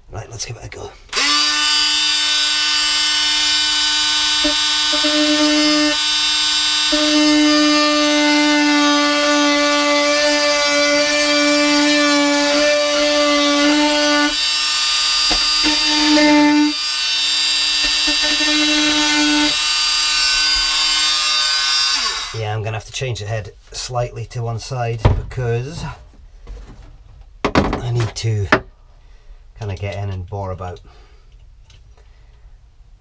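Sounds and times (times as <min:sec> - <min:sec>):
multi-tool cutting sheet steel: 0:01.1 - 0:22.4.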